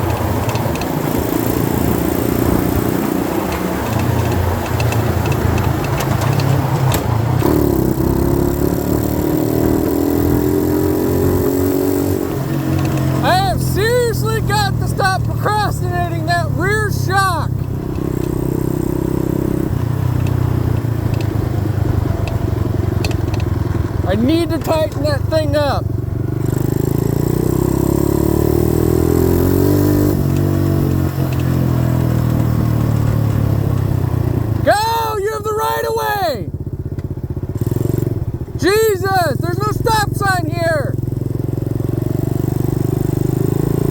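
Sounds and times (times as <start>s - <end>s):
wind and road hiss: 0.0s - 6.9s
dirt bike engine running: 0.0s - 43.9s.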